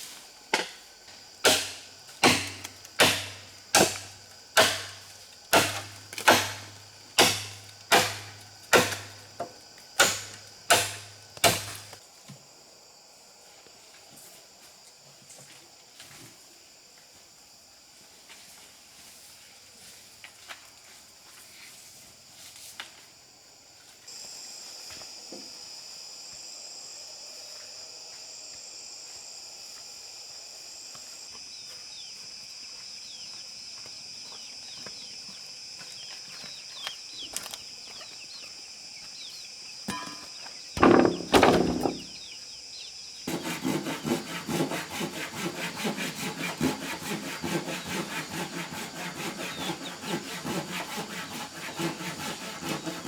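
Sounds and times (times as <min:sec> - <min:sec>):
hand saw cutting wood: 0:01.5 - 0:09.2, 0:10.0 - 0:11.9, 0:40.8 - 0:42.1, 0:43.3 - 0:53.0
loud thumps: 0:40.8 - 0:42.2.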